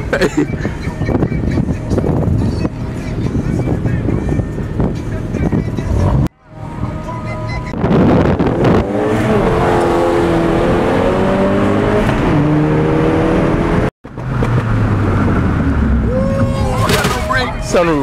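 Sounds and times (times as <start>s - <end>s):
car engine accelerating hard: 7.8s - 16.2s.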